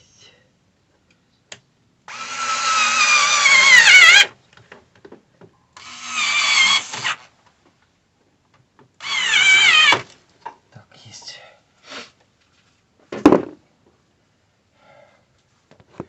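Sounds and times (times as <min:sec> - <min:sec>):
cordless drill motor whine: 0:02.1 - 0:04.3, 0:05.8 - 0:07.2.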